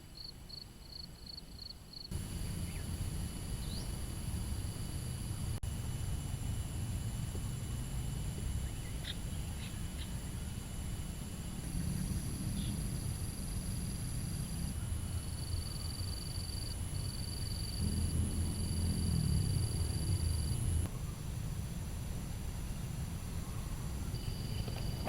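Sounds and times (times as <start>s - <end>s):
insects trilling: 0.2s - 5.9s, 11.5s - 21.1s, 23.5s - 25.0s
low rumble: 17.8s - 22.5s.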